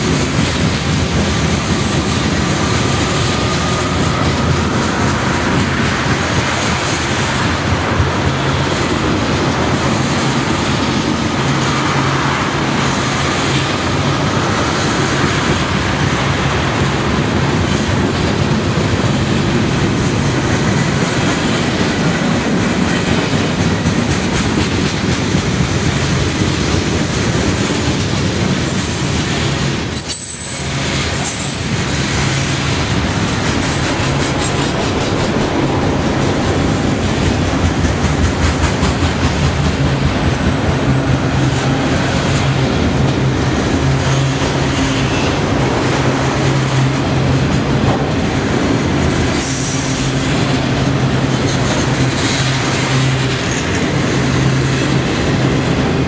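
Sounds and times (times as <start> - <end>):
freight cars rumbling on rails: 0.0 - 56.0
high wheel squeals: 28.6 - 33.9.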